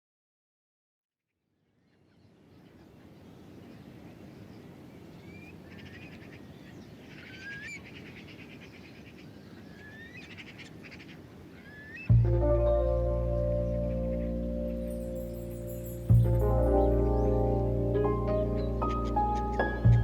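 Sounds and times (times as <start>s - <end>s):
birds whistling and trilling: 2.7s - 12.1s, 14.1s - 17.5s, 18.3s - 20.0s.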